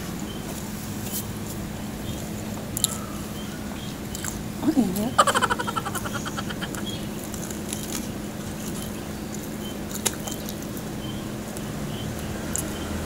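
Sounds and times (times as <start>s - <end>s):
steady low hum: 0.0s - 12.0s
chewing crispy food: 7.2s - 12.7s.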